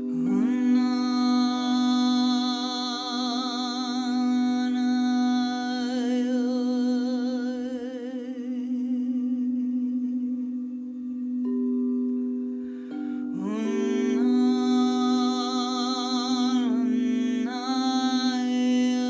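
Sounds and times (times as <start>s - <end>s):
person singing long note: 0.0s - 10.9s, 13.3s - 19.0s
singing bowl ringing: 0.0s - 19.0s.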